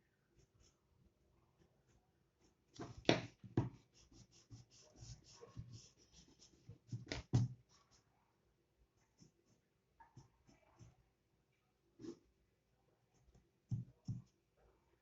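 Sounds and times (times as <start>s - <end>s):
pencil scratching on paper: 1.8s - 8.2s, 9.0s - 11.1s
pencil taps: 2.7s - 4.3s, 5.0s - 7.6s, 13.3s - 14.4s.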